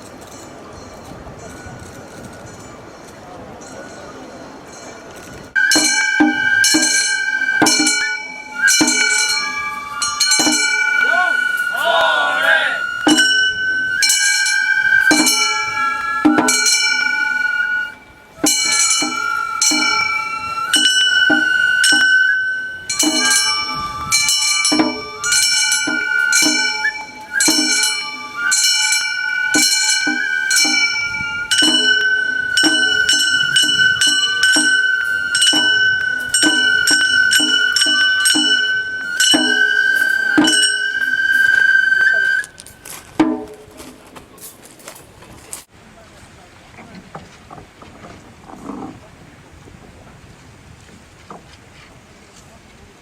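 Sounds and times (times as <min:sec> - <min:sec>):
bamboo flute long notes: 0:05.6 - 0:42.8.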